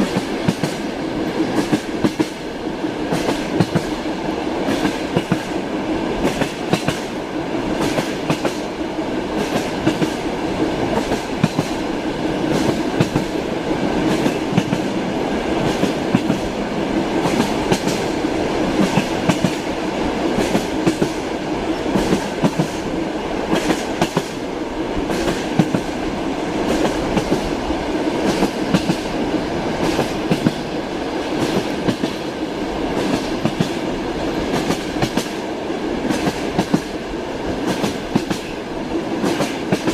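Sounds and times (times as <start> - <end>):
train running rumble: 0.0 - 39.9
train wheels clacking over rails: 0.0 - 39.9.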